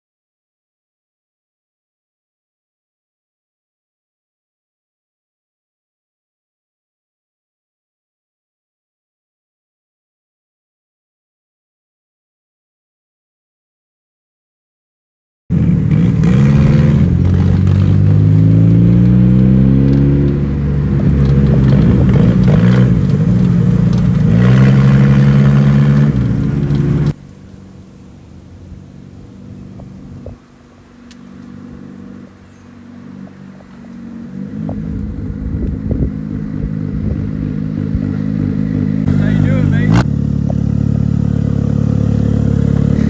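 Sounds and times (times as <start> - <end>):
car engine accelerating through gears: 15.5 - 27.2, 29.1 - 43.0
low engine sound: 15.5 - 43.0.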